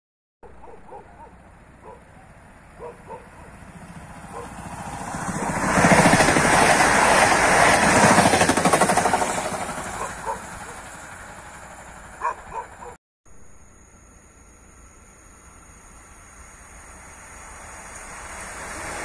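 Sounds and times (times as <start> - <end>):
electric train passing at speed: 0.5 - 13.0, 13.7 - 19.0.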